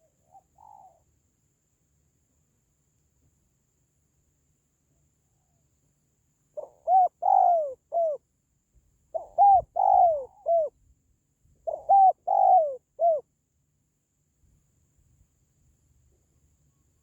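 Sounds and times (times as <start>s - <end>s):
dove cooing: 0.0s - 1.0s, 6.6s - 8.2s, 9.1s - 10.8s, 11.6s - 13.2s.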